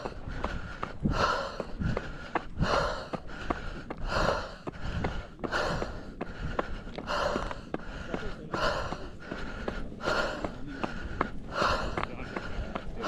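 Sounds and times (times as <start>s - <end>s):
footsteps on a trail: 0.0s - 13.0s
runner breathing heavily: 0.0s - 13.0s.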